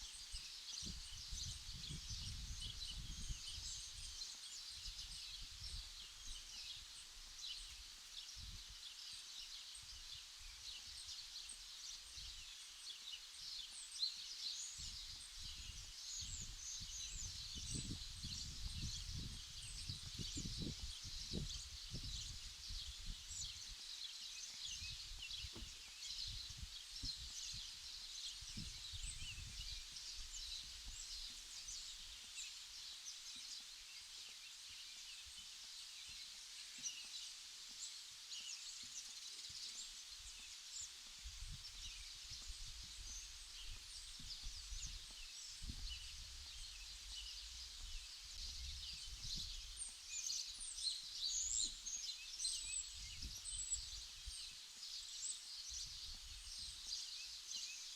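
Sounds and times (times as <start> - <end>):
small birds chirping: 0.0 - 57.9
wind rumbling on microphone: 0.3 - 6.5, 14.8 - 23.8, 24.6 - 31.8, 41.2 - 49.9, 52.7 - 54.5.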